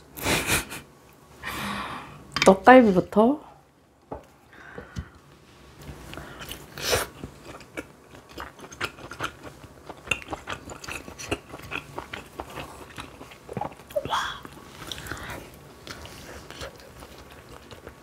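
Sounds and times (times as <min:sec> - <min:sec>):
person chewing: 0:06.1 - 0:18.0.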